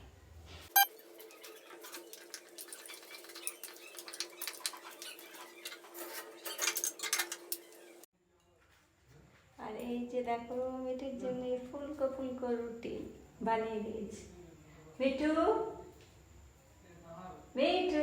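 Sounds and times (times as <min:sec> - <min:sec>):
metal utensils clattering: 0:01.0 - 0:08.0.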